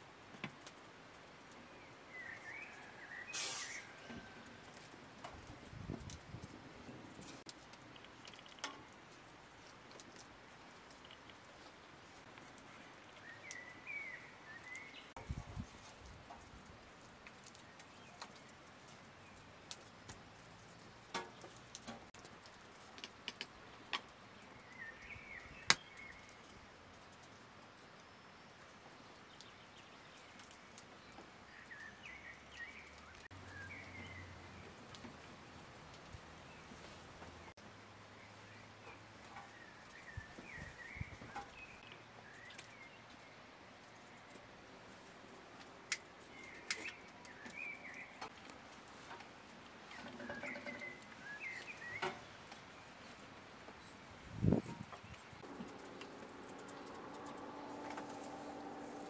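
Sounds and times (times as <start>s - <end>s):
bird chirping: 1.6s - 4.3s, 12.7s - 15.2s, 24.4s - 26.5s, 29.2s - 34.8s, 46.2s - 48.3s, 49.9s - 53.2s.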